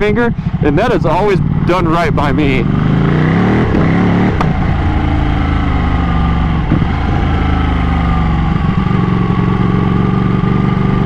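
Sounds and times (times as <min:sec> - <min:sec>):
motorcycle engine slowing: 0:00.0 - 0:11.0.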